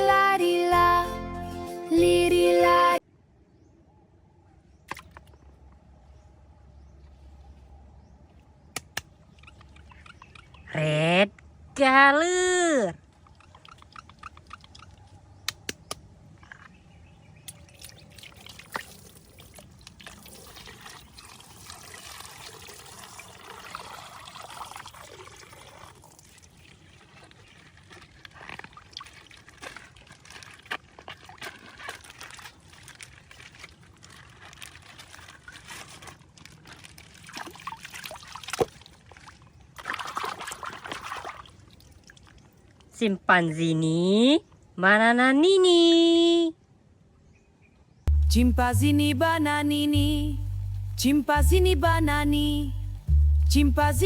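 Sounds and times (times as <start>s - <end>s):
sharp clicks and snaps: 8.7s - 9.8s, 13.8s - 16.7s
plastic bag crinkling: 27.0s - 37.6s.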